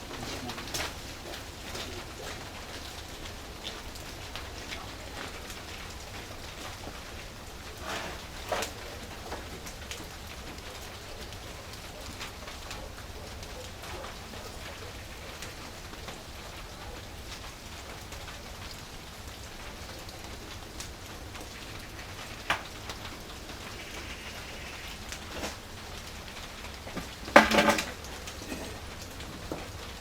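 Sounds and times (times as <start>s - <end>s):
wood fire crackling: 0.0s - 30.0s
knocks: 27.0s - 27.9s.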